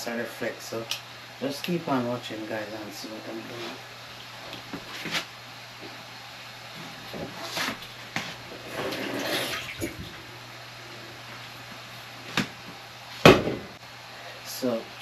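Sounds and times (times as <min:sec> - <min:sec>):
water splashing: 0:08.7 - 0:10.2.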